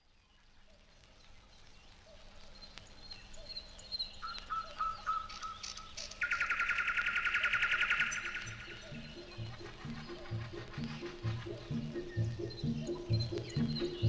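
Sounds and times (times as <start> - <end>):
birds chirping and whistling: 0.9 - 14.0
loud fast bird trill: 3.3 - 14.0.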